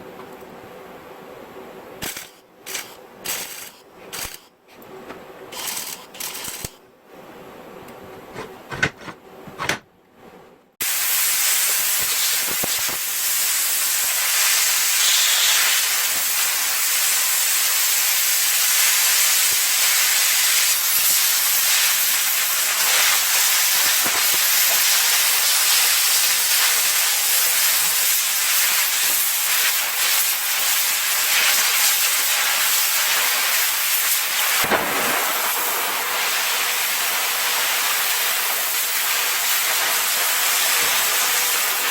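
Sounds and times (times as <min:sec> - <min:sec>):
loud steady hiss: 0:10.8 - 0:41.9.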